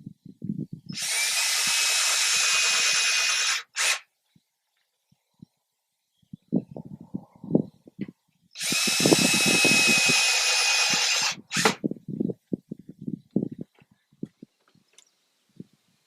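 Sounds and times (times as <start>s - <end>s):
power drill running: 1.0s - 4.0s, 8.6s - 11.8s.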